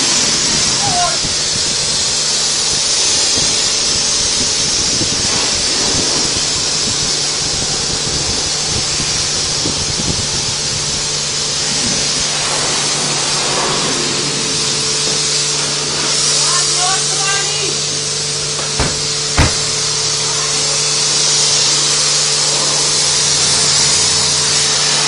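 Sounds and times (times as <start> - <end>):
water spray hissing: 18.6 - 20.1.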